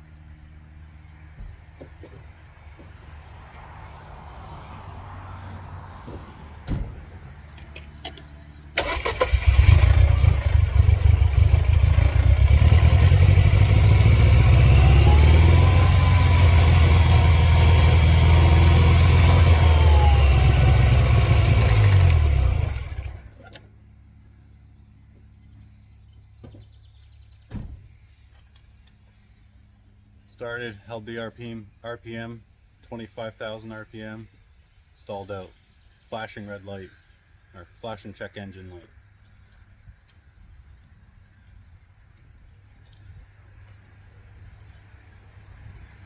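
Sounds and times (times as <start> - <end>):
engine whine: 0.0 - 26.6
car engine cranking and running: 7.6 - 23.6.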